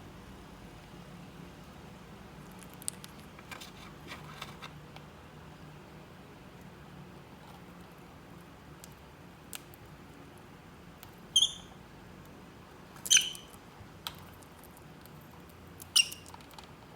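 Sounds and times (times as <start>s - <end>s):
bird chirping shrilly: 11.4s - 11.8s, 13.1s - 13.5s.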